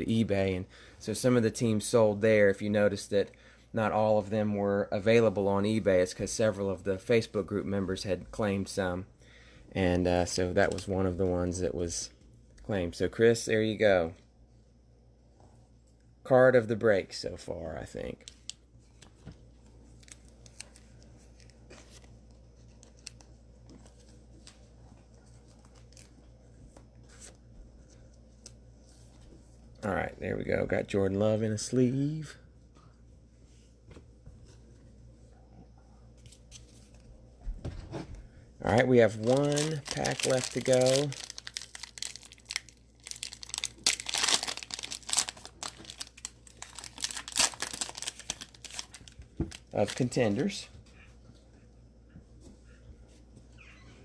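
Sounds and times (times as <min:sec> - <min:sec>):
low room hum: 0:00.0 - 0:54.0
plastic wrapper crinkling and tearing: 0:19.9 - 0:23.3, 0:38.7 - 0:50.5.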